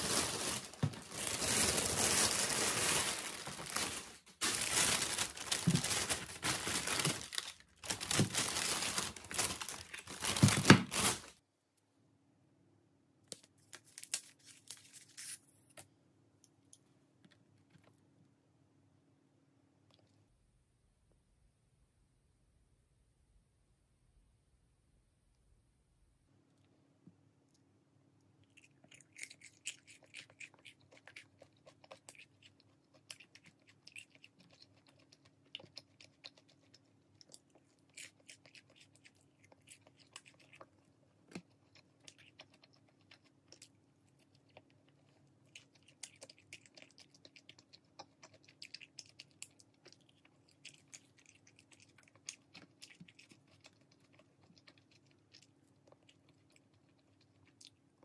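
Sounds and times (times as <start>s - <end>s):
crunchy chewing: 28.4s - 58.0s.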